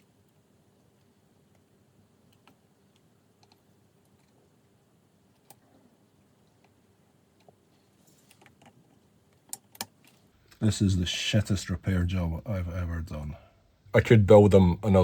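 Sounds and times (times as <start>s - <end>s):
small tools clicking and tapping: 8.3s - 10.6s.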